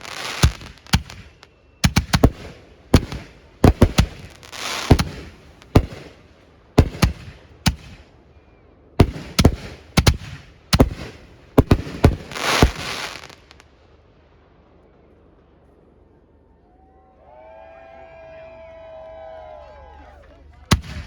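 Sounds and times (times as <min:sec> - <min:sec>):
fireworks hiss: 0:00.0 - 0:08.1, 0:09.0 - 0:13.7
fireworks bangs: 0:00.0 - 0:08.4, 0:09.0 - 0:13.8, 0:20.7 - 0:21.0.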